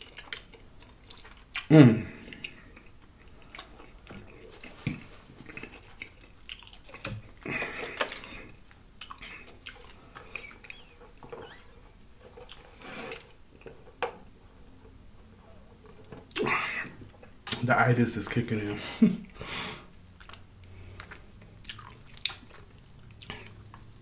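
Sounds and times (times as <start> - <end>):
chewing and lip-smacking: 0.0 - 11.3, 12.3 - 13.8, 19.9 - 24.0.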